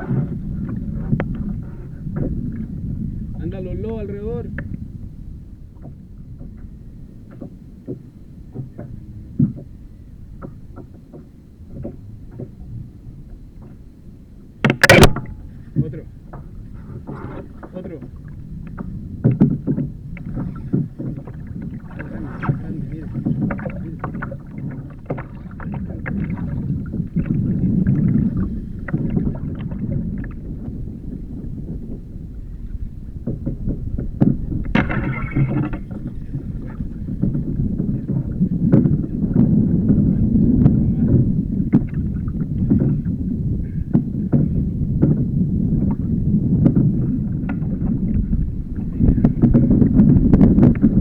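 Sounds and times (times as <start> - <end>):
water sloshing against kayak hull: 0.0 - 51.0
wind rumbling on microphone: 0.0 - 51.0.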